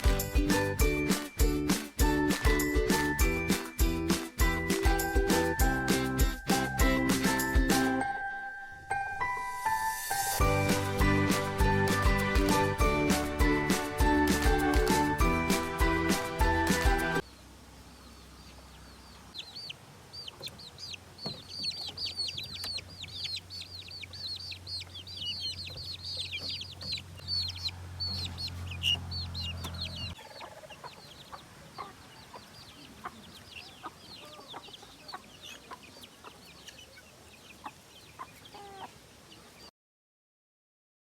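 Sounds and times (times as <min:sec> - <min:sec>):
birds chirping: 0:10.8 - 0:39.7.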